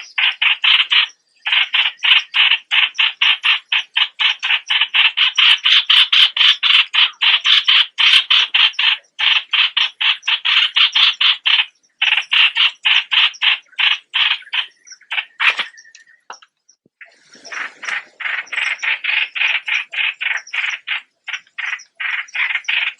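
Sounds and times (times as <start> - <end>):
bird calling harsh notes: 0.0 - 16.4.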